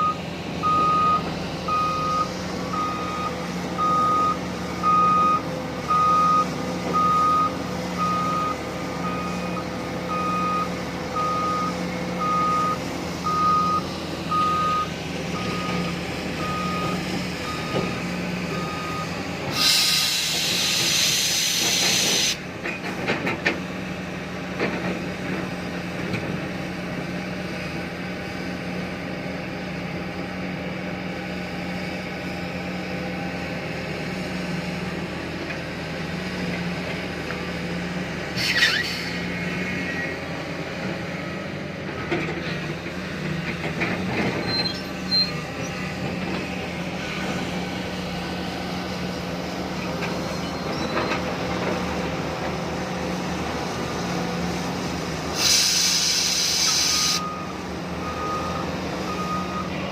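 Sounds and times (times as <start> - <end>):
reversing alarm beeping: 0.0 - 19.2, 56.4 - 59.9
diesel engine running: 0.0 - 59.9
air brake hiss: 19.5 - 22.4, 38.4 - 39.3, 55.3 - 57.3.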